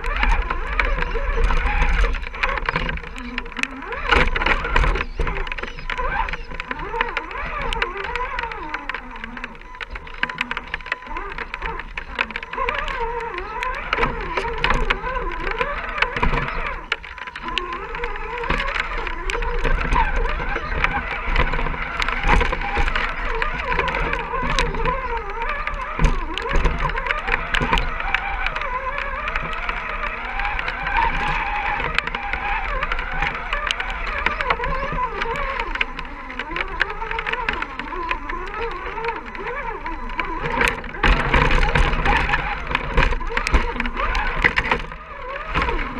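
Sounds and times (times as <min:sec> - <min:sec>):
clicks and knocks: 0:00.0 - 0:45.9
electric motor whining: 0:00.0 - 0:45.9.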